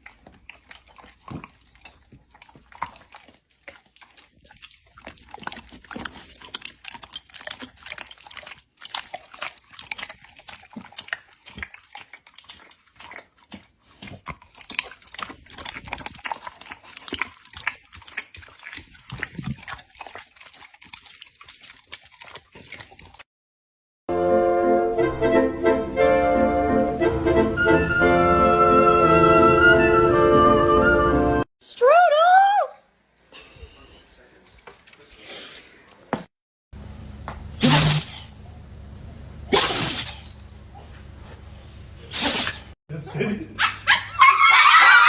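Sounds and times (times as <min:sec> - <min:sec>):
dog chewing and licking: 0:00.0 - 0:23.3.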